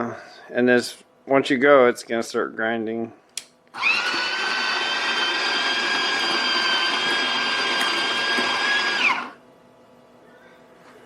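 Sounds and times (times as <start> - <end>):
coffee grinder whining: 3.8 - 9.4.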